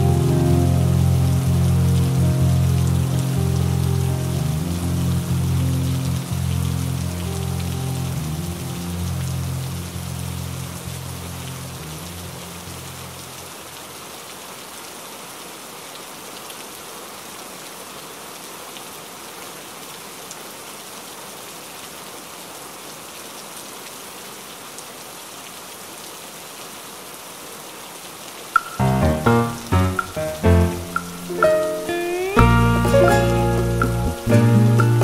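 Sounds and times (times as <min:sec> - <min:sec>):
mellow music notes: 0:00.0 - 0:13.0, 0:28.6 - 0:35.0
rain on a window: 0:00.0 - 0:35.0.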